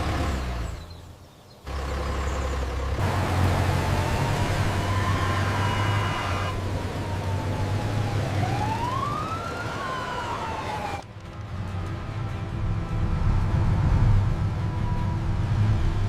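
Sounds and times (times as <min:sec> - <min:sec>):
low engine rumble: 0:00.0 - 0:16.0
police siren wailing: 0:03.0 - 0:11.1, 0:14.2 - 0:16.0.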